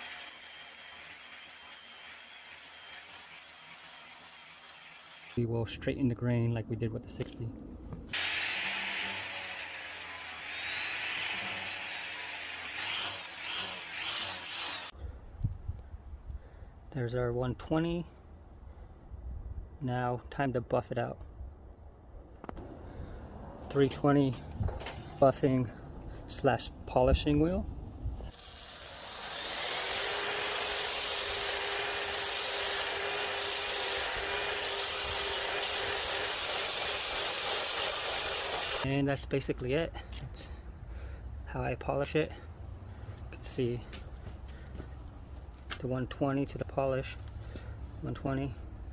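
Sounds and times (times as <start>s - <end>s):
grinder grinding steel bar: 0.0s - 5.4s, 8.2s - 14.9s, 28.3s - 38.9s.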